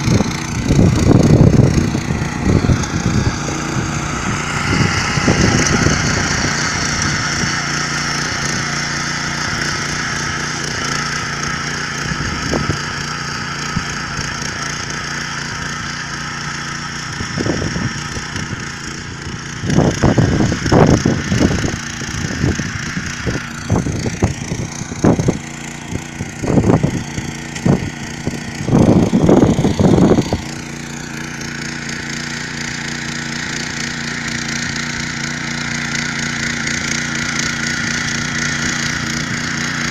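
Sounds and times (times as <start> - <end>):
garden tiller engine running: 0.0 - 39.9.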